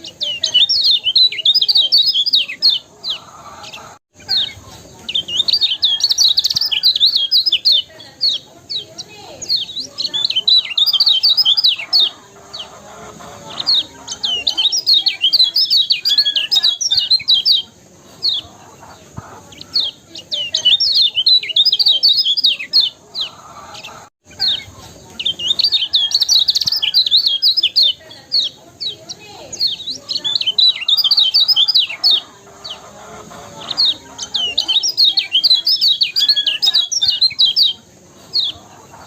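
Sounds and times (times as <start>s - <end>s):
birds singing high falling chirps: 0.0s - 39.0s.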